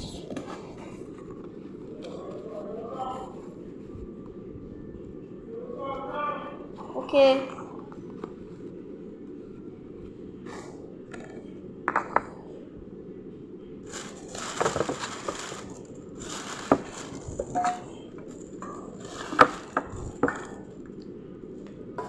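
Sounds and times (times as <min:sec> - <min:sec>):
plastic packaging rustling: 0:13.8 - 0:20.9.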